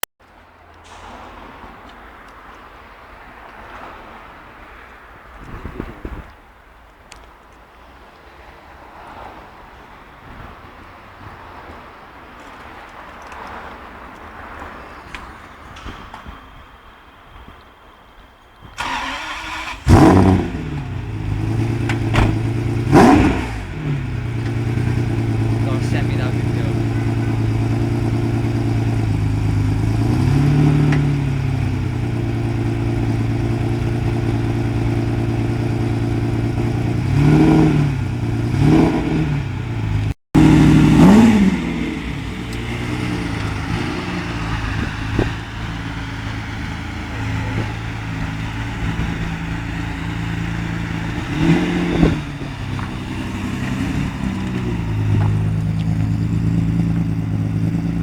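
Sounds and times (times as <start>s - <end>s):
car engine idling and revving: 11.6s - 58.0s.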